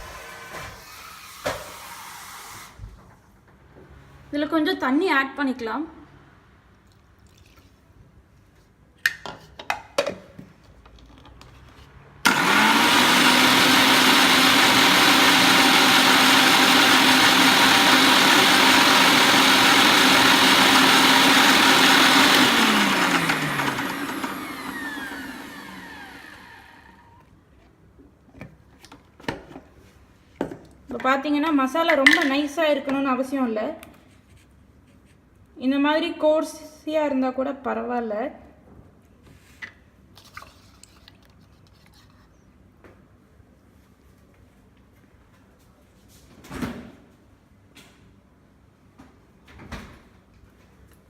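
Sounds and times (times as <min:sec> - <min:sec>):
mixer grinder motor running: 0:12.2 - 0:27.3.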